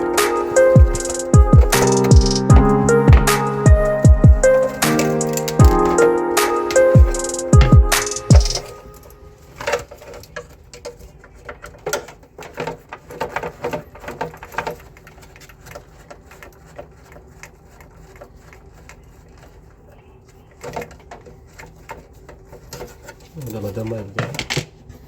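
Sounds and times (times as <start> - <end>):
hard objects clicking and tapping: 0.0 - 8.8.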